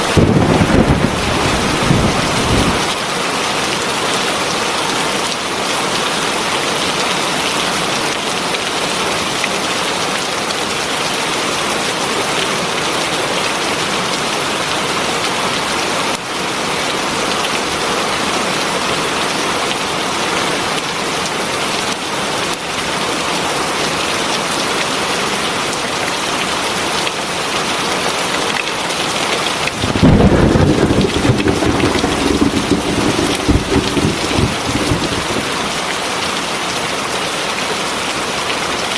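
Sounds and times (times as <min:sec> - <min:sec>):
heavy rain: 0:29.6 - 0:36.4
thunder rumbling: 0:29.7 - 0:35.9.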